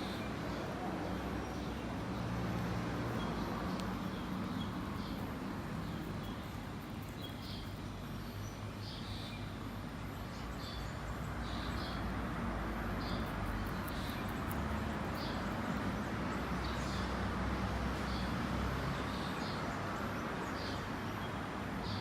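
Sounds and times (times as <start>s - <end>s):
small bird chirping: 3.0s - 9.6s, 13.0s - 17.1s.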